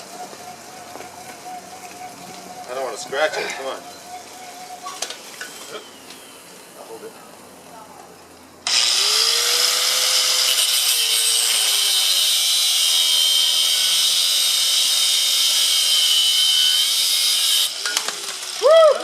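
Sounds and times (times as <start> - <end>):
angle grinder cutting steel: 8.7 - 18.6.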